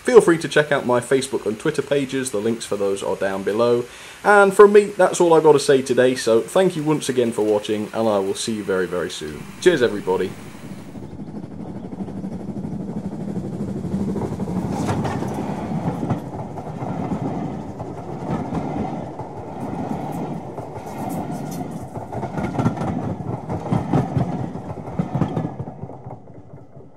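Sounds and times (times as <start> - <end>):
wheels clicking over rail joints: 5.1 - 26.9
wheels rumbling on track: 7.0 - 26.9.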